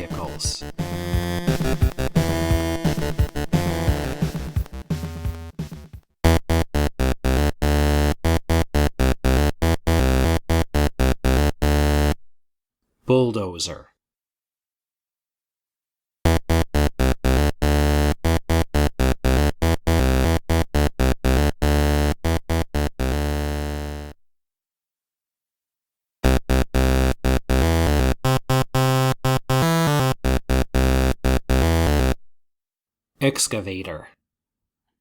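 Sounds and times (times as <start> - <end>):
electronic keyboard music: 0.0 - 5.6.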